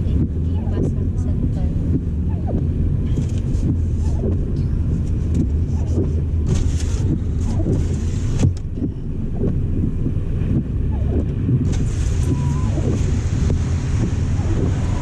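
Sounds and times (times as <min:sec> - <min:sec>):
car engine and road rumble: 0:00.0 - 0:15.0
hissing swishes: 0:11.6 - 0:15.0.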